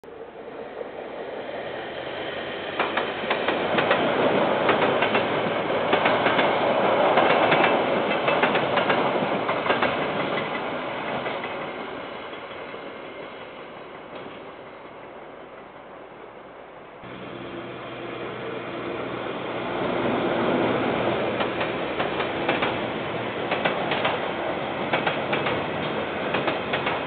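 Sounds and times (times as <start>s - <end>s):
train rolling past: 0.1s - 27.0s
wheels clicking over rail joints: 2.8s - 6.6s, 7.2s - 11.7s, 21.4s - 22.8s, 23.5s - 24.3s, 24.9s - 27.0s.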